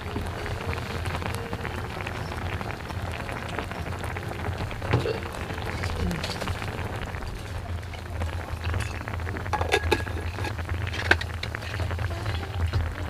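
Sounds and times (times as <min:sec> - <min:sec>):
food sizzling in a pan: 0:00.0 - 0:13.0
low burner hum: 0:00.0 - 0:13.0.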